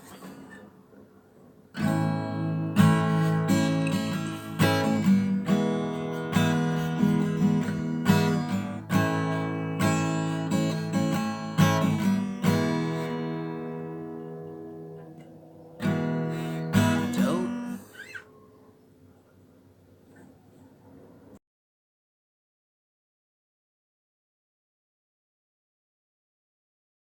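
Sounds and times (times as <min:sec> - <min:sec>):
acoustic guitar strumming chords: 0:01.7 - 0:18.2.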